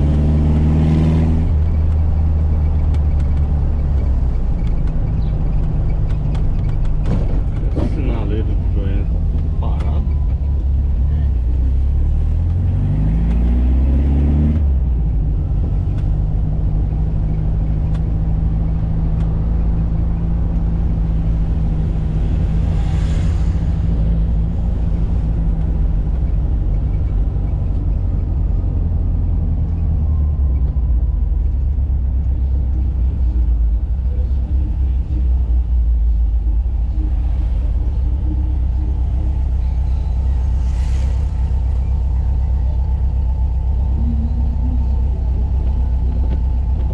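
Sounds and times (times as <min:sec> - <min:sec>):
car engine accelerating: 0:00.0 - 0:46.9
road noise: 0:00.0 - 0:46.9
whoosh: 0:22.0 - 0:25.4, 0:39.6 - 0:42.6.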